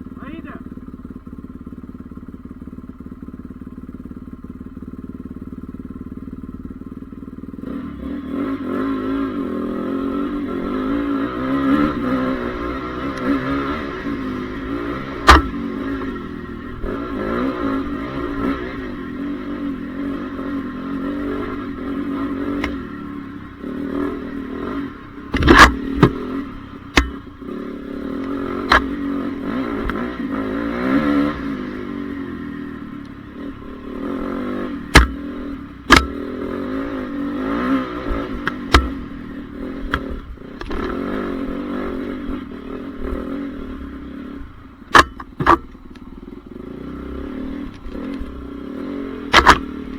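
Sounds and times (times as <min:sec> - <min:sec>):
motorbike engine revving: 0:00.0 - 0:49.9
sharp knocks: 0:15.0 - 0:16.1, 0:25.3 - 0:27.4, 0:34.9 - 0:35.3, 0:35.9 - 0:36.2, 0:38.1 - 0:39.1, 0:44.9 - 0:45.8, 0:49.3 - 0:49.7.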